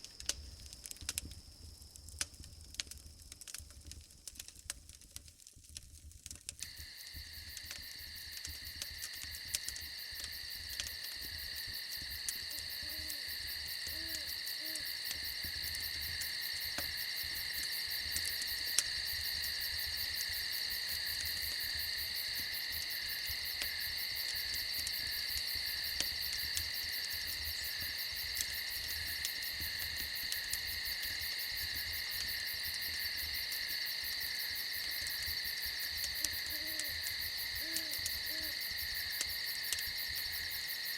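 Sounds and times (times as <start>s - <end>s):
crickets chirping: 6.6s - 40.9s
soft low owl hoots: 12.5s - 15.0s, 36.2s - 38.6s.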